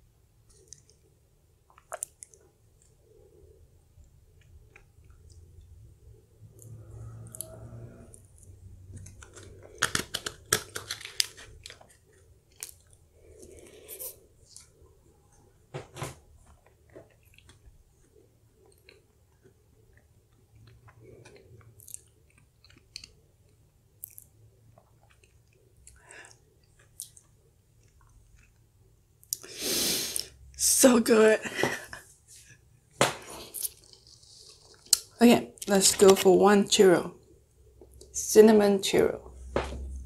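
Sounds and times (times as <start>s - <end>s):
close chewing with mouth clicks: 1.7s - 3.0s, 16.5s - 29.5s, 33.4s - 35.7s.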